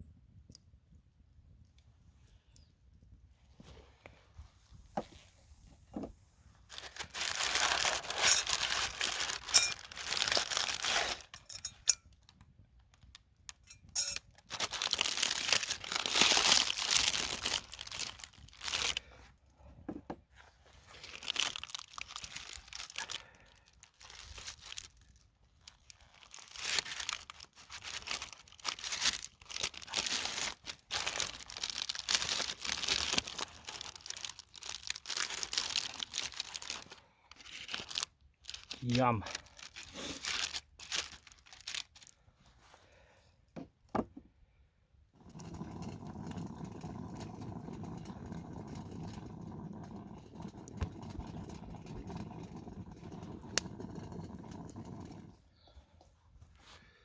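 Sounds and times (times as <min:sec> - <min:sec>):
crinkling and rustling: 0:03.3 - 0:42.9.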